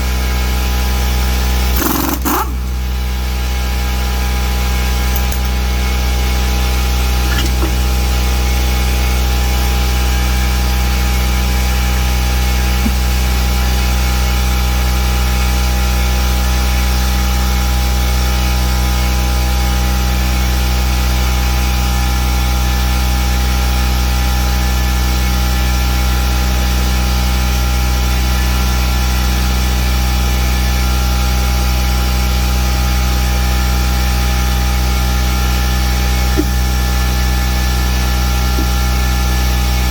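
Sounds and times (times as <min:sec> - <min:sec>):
steady machine drone: 0:00.0 - 0:19.0, 0:31.0 - 0:39.9.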